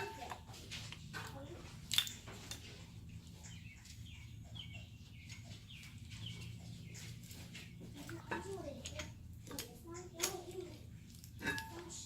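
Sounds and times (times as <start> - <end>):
bird chirping faintly: 3.0 - 9.0.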